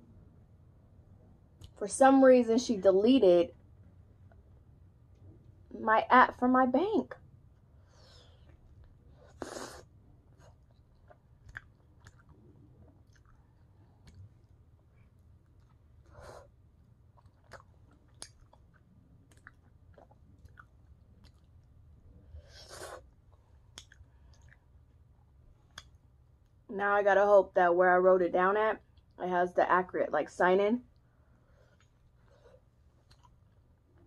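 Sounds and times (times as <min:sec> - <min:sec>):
person chewing: 0:08.4 - 0:21.7, 0:22.5 - 0:24.8, 0:31.6 - 0:33.6
wet mouth clicks: 0:10.4 - 0:12.4, 0:17.2 - 0:21.5, 0:23.7 - 0:24.7, 0:25.7 - 0:26.0.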